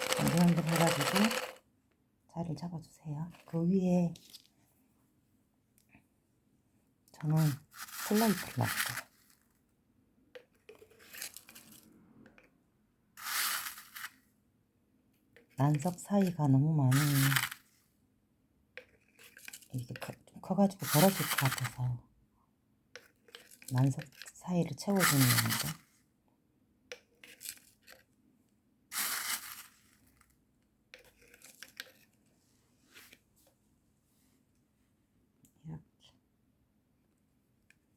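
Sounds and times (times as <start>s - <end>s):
grains clicking and rattling: 0.0s - 1.6s, 7.2s - 9.5s, 10.4s - 12.4s, 13.2s - 14.2s, 15.5s - 17.8s, 20.8s - 21.9s, 23.0s - 25.8s, 28.9s - 30.4s, 31.0s - 32.1s
granules poured into plastic bottle: 0.0s - 1.6s, 7.4s - 9.4s, 10.7s - 11.9s, 13.2s - 14.2s, 15.7s - 17.8s, 20.8s - 21.8s, 23.3s - 25.8s, 28.9s - 30.3s
gritty rustle of pouring grains: 0.0s - 1.6s, 7.4s - 9.3s, 13.2s - 14.2s, 16.9s - 17.6s, 28.9s - 30.0s.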